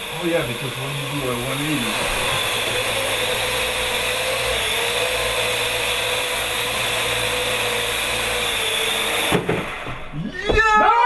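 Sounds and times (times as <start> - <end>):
drone propellers whirring buzz: 0.0 - 6.9.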